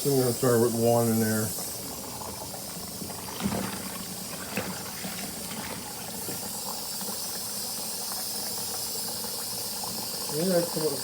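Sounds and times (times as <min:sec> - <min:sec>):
water running into washing machine: 0:00.0 - 0:11.0.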